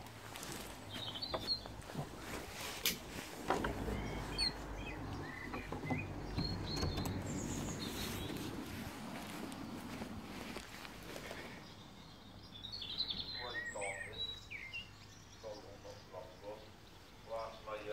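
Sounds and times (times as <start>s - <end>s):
small birds chirping: 0.0s - 17.9s
low handling rumble: 0.2s - 12.6s.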